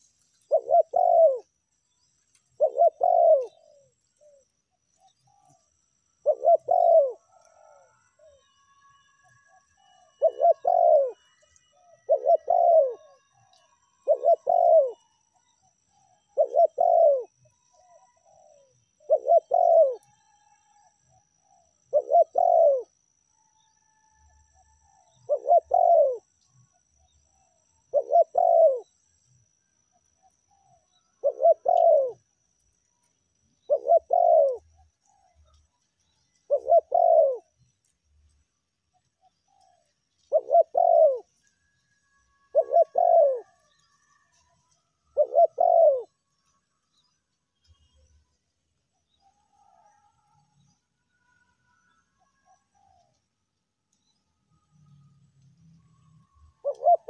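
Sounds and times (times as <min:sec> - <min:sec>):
dove cooing: 0:00.0 - 0:01.6, 0:02.5 - 0:05.6, 0:06.2 - 0:08.4, 0:09.5 - 0:15.0, 0:16.0 - 0:20.1, 0:21.2 - 0:23.0, 0:24.6 - 0:26.3, 0:27.8 - 0:28.9, 0:30.2 - 0:32.3, 0:33.6 - 0:35.6, 0:36.3 - 0:37.6, 0:39.2 - 0:41.4, 0:42.4 - 0:44.4, 0:45.0 - 0:46.2, 0:56.6 - 0:57.0.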